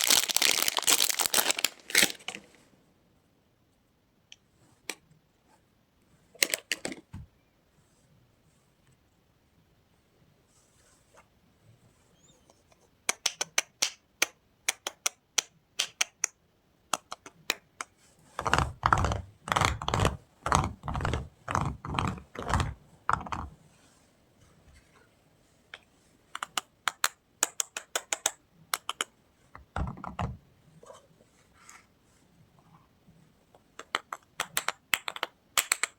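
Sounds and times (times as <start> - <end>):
clicks and taps on packaging: 33.8 - 35.9.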